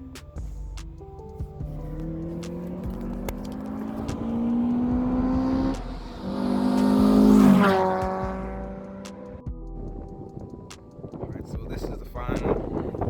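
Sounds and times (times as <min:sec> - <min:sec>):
car accelerating hard: 0:00.0 - 0:09.4.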